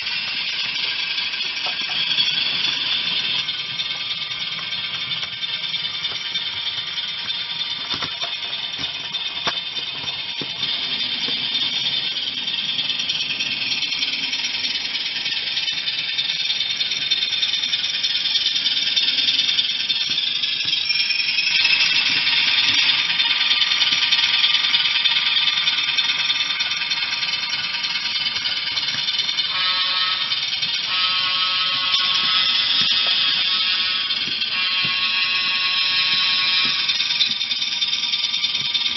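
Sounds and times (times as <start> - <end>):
model wheels rattling on track: 0.0 - 38.9
horn blasts: 29.5 - 30.3.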